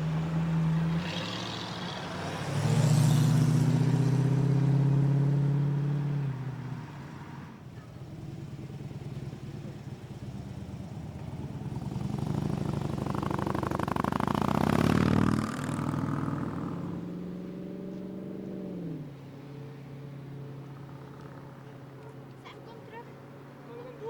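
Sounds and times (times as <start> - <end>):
car accelerating past: 0.0 - 22.4
engine low hum: 0.0 - 24.0.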